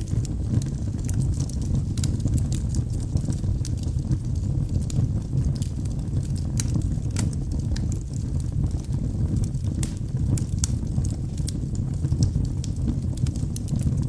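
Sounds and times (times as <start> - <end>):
flame rumble: 0.0 - 14.0
logs crackling and popping: 0.0 - 14.0.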